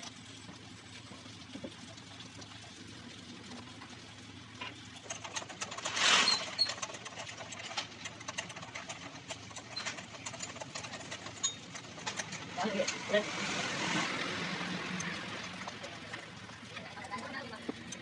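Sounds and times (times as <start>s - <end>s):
metal tools clinking on engine parts: 4.6s - 14.0s.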